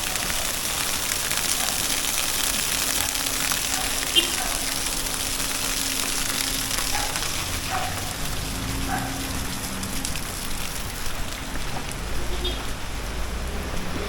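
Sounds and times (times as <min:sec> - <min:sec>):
rain falling on street: 0:00.0 - 0:14.0.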